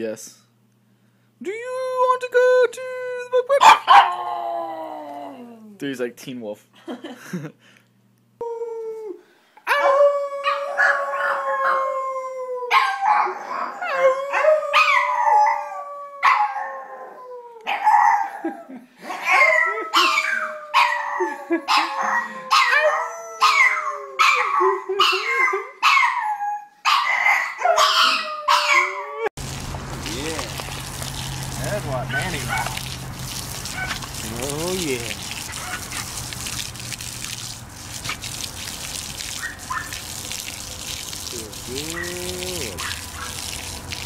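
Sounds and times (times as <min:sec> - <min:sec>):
dog howling: 0:09.7 - 0:18.3, 0:19.3 - 0:24.5, 0:26.1 - 0:29.3, 0:30.2 - 0:32.9, 0:41.4 - 0:43.5
short choppy dog sounds: 0:33.6 - 0:40.3, 0:40.9 - 0:43.6.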